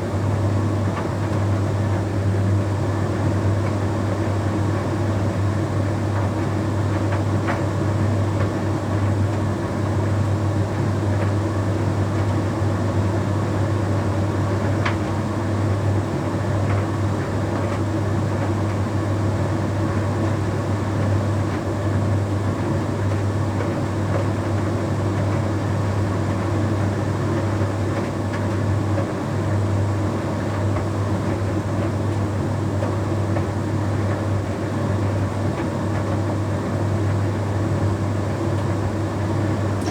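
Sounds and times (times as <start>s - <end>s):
tumble dryer humming: 39.0s - 39.9s.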